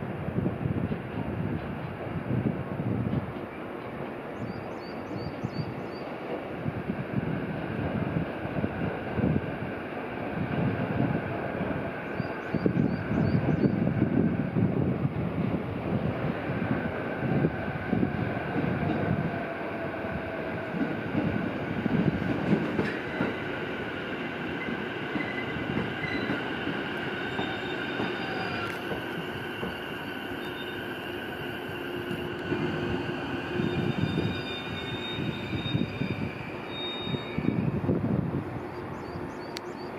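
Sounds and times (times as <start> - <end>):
train rumble: 0.0 - 39.9
train wheels squealing: 4.4 - 6.1, 12.0 - 13.9, 24.5 - 37.9.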